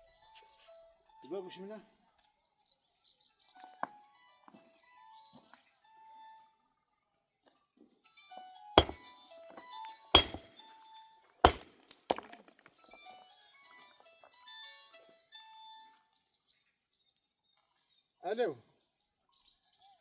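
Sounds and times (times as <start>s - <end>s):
heavy thunks: 10.2s - 10.4s.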